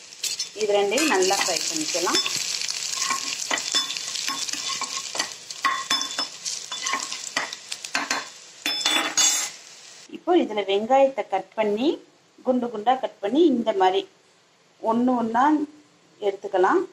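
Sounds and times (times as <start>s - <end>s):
garlic sizzling in hot oil: 0.0s - 10.1s
spoon scraping and tapping pan: 0.2s - 9.6s.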